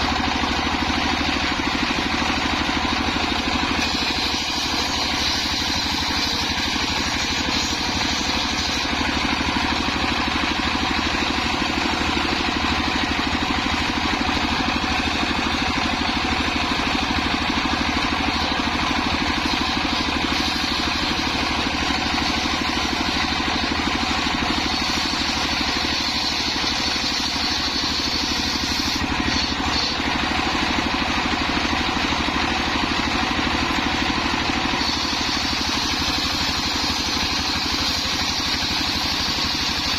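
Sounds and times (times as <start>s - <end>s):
saw machine engine running: 0.0s - 39.9s.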